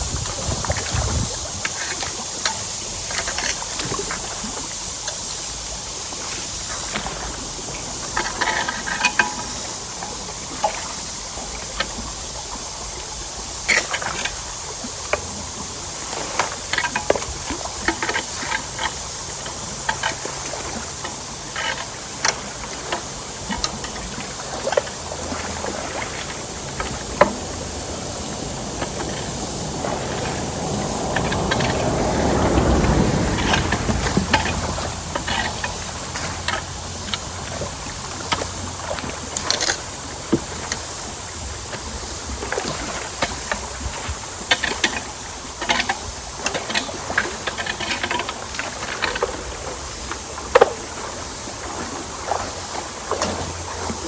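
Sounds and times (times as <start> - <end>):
creek water running: 0.0 - 54.0
loud rushing sound: 26.1 - 35.4.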